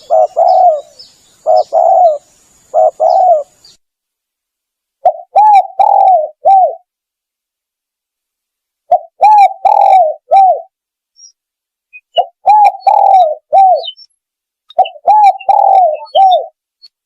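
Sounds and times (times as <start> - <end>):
dove cooing: 0.0 - 3.7, 5.0 - 6.9, 8.9 - 10.7, 12.1 - 14.0, 14.7 - 16.6.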